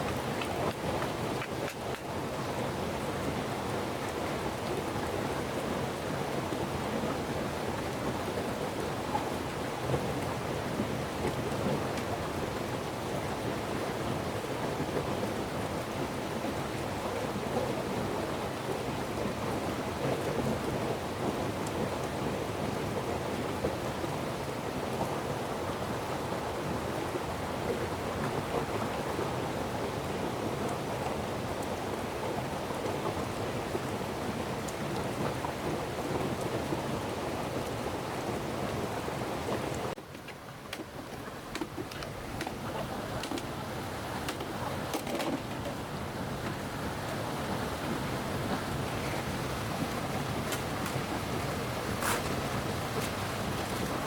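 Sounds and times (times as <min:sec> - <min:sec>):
heavy rain pouring: 0:30.3 - 0:54.0.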